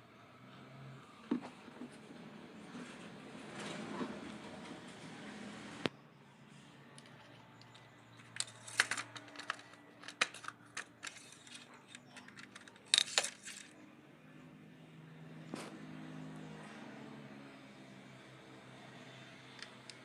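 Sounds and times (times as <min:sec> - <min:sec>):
small hard objects clinking: 0:07.6 - 0:13.7.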